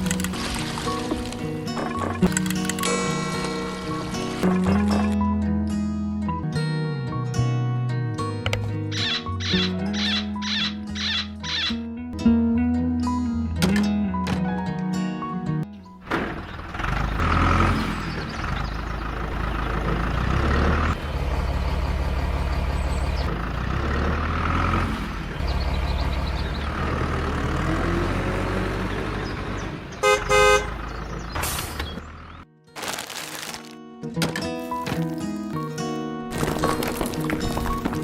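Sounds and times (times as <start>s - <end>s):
vehicle engine running: 16.0s - 32.4s
horn honking: 29.9s - 30.9s.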